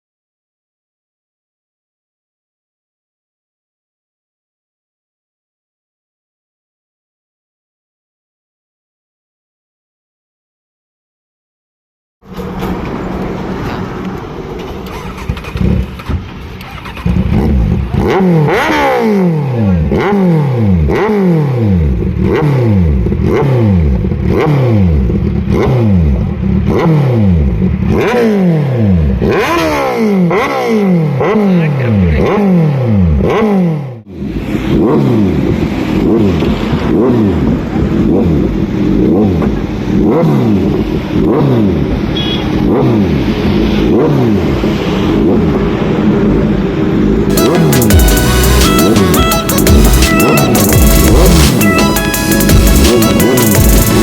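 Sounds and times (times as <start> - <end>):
motorcycle engine revving: 12.2 - 54.0.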